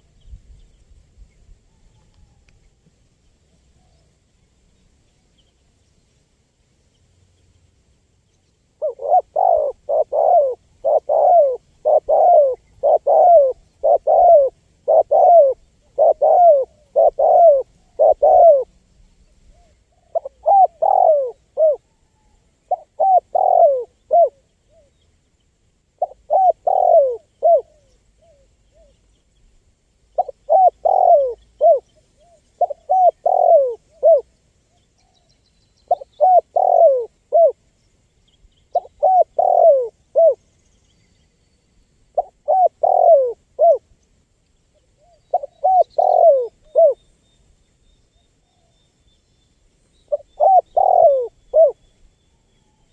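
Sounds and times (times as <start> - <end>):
dove cooing: 8.8 - 18.8, 19.5 - 24.9, 26.0 - 28.9, 30.2 - 34.3, 35.9 - 37.6, 38.7 - 40.4, 42.2 - 43.9, 45.0 - 47.0, 50.1 - 51.9.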